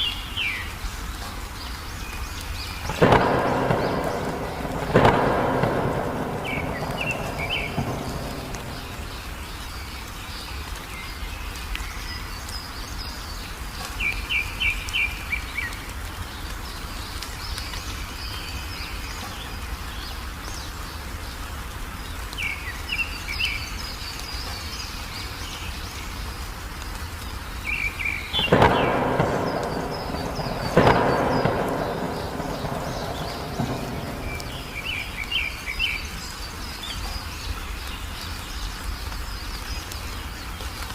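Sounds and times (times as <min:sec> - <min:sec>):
rain: 0:00.0 - 0:40.9
songbirds chirping: 0:00.0 - 0:40.9
thunder rumbling: 0:02.8 - 0:10.0, 0:27.8 - 0:36.2
loud peal of thunder: 0:02.9 - 0:09.6, 0:28.4 - 0:35.7.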